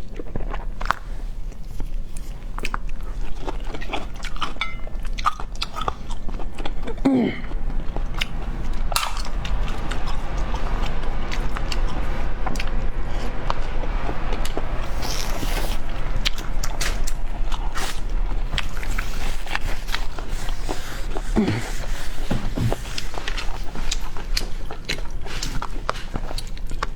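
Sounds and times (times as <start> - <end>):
chewing: 0.0 - 26.9
low hum: 4.3 - 25.2.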